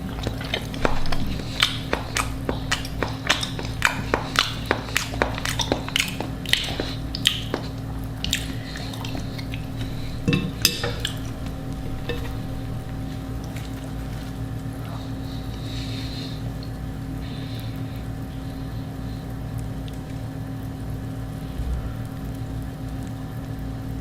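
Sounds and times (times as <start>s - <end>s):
crisp eating crunches: 0.0s - 18.6s
steady low hum: 0.0s - 24.0s.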